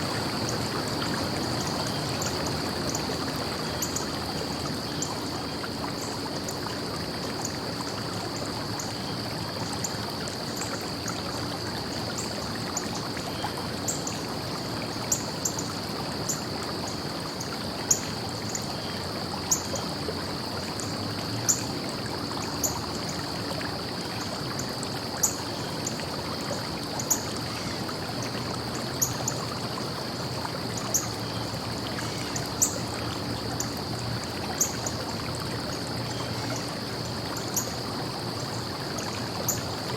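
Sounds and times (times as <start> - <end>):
stream flowing: 0.0 - 39.9
water clicks and splashes: 9.6 - 39.9.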